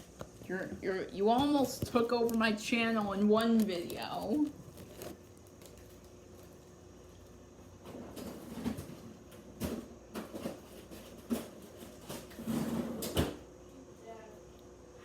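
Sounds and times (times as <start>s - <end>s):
rustling and shuffling: 0.0s - 9.2s.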